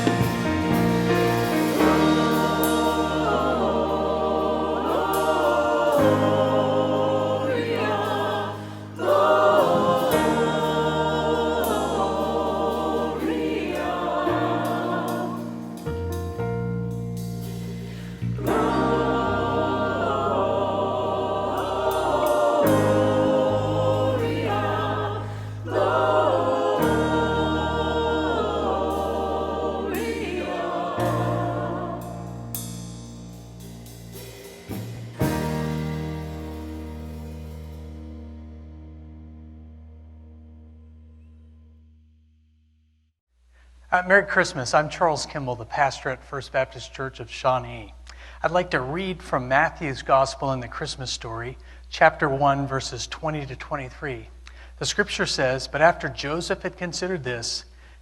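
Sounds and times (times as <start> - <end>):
church choir singing: 0.0 - 16.0, 17.9 - 32.8, 34.7 - 38.0
sustained bass notes: 0.0 - 42.2.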